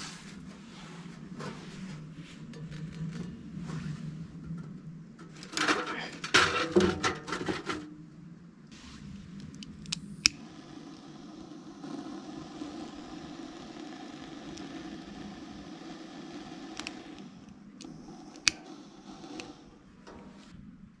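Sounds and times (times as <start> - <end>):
wood fire hissing: 0.0 - 2.5, 8.7 - 21.0
fire crackles: 8.7 - 21.0.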